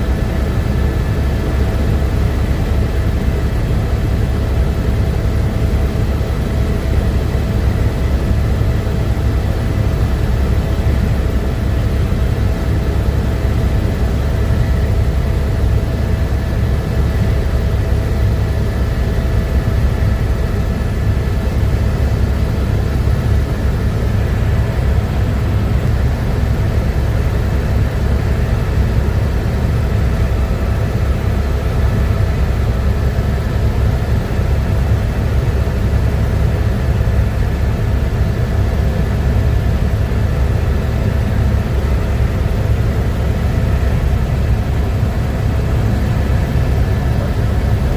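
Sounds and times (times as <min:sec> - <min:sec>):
helicopter rotor and engine rumble: 0:00.0 - 0:47.9.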